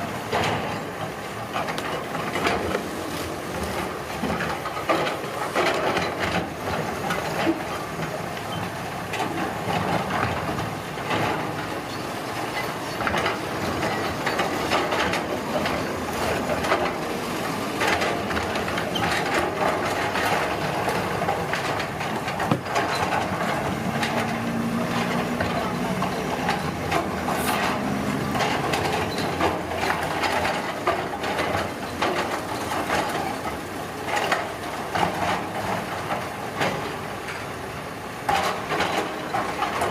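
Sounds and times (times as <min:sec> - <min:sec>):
diesel engine running: 0:13.0 - 0:31.6.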